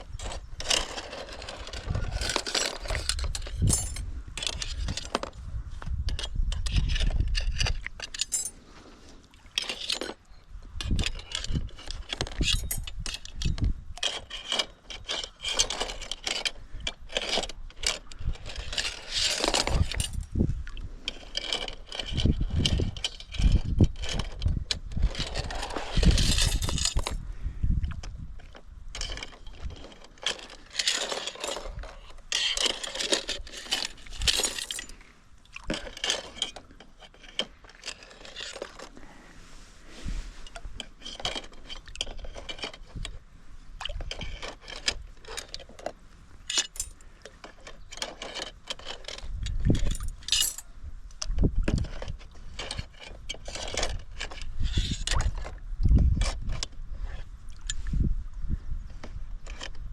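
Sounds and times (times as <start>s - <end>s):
metal clinking and scraping: 0.0s - 5.4s, 6.1s - 8.7s, 9.6s - 10.2s, 10.8s - 20.3s, 21.1s - 27.2s, 28.5s - 39.2s, 40.0s - 43.2s, 43.9s - 50.7s.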